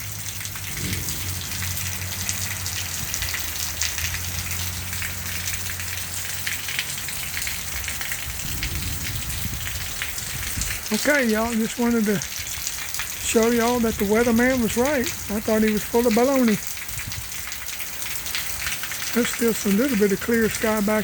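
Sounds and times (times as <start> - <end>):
heavy rain falling: 0.0 - 21.0
low rumble: 0.6 - 3.6, 8.2 - 10.9.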